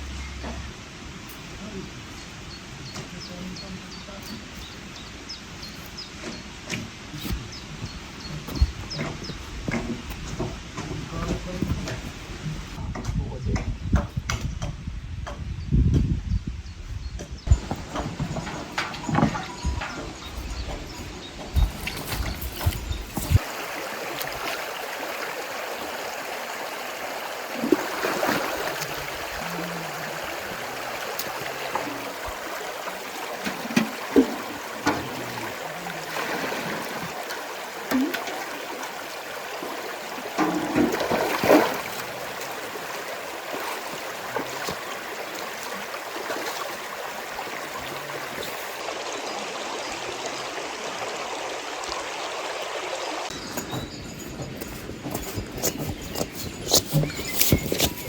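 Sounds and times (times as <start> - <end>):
running water rushing: 17.5 - 58.0.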